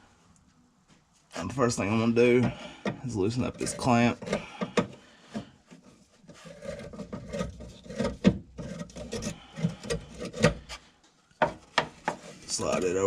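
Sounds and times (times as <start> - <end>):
screwdriver scraping metal: 3.4 - 4.8, 5.8 - 10.8.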